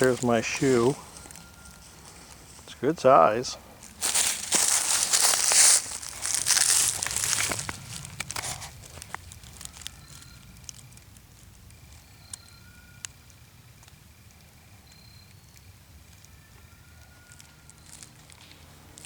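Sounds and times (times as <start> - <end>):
footsteps crunching dry leaves: 0.0 - 3.0, 3.7 - 10.9, 17.2 - 19.0.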